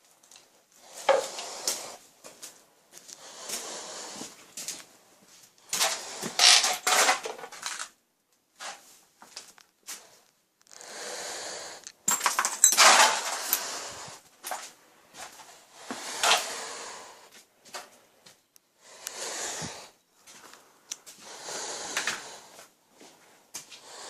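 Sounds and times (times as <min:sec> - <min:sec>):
handling knocks and clatters: 0:12.0 - 0:13.6.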